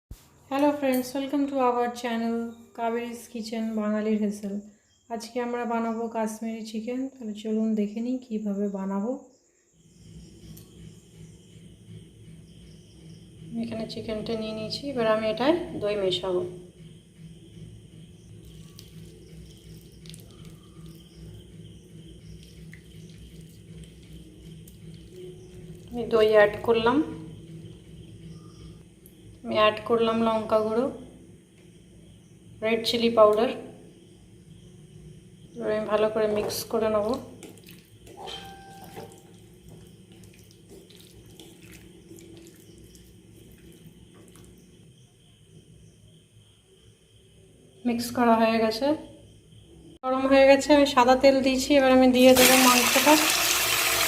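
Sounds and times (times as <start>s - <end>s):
low steady hum: 9.8s - 46.0s
faint wet food sounds: 18.3s - 25.9s, 36.9s - 44.9s.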